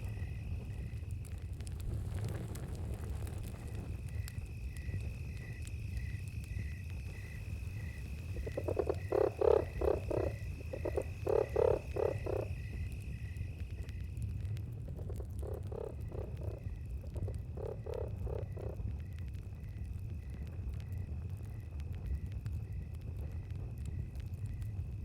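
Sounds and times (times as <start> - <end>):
constant low rumble: 0.0 - 25.0
cricket trill: 0.0 - 25.0
frog croaking: 7.8 - 12.8, 15.0 - 18.9.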